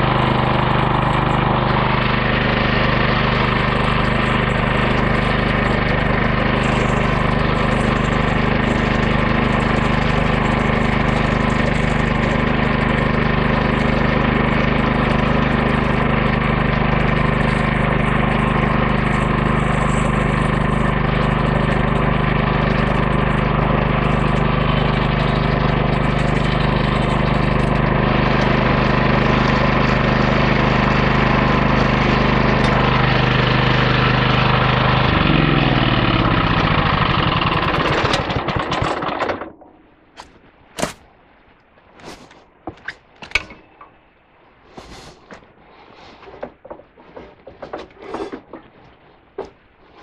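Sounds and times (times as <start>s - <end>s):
small engine running steadily: 0.0s - 41.2s
band blade cutting log: 40.2s - 41.2s, 42.0s - 43.7s, 44.7s - 45.4s.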